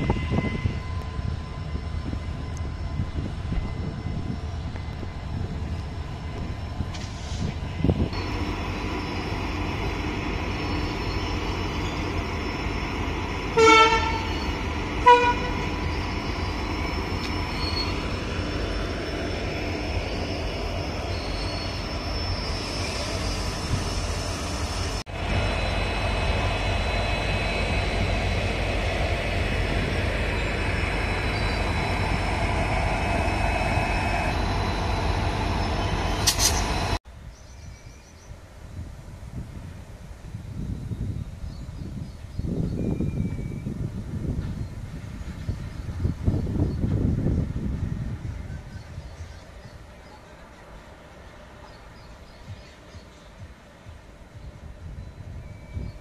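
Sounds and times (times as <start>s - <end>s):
freight train rumbling past: 0.0s - 56.0s
high squeal: 7.2s - 14.7s, 15.6s - 37.0s
short train horn blasts: 13.5s - 15.8s.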